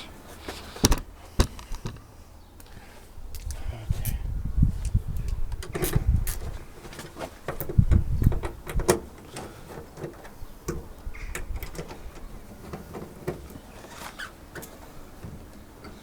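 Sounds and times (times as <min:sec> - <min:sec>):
heavier knocks: 0:00.8 - 0:02.1.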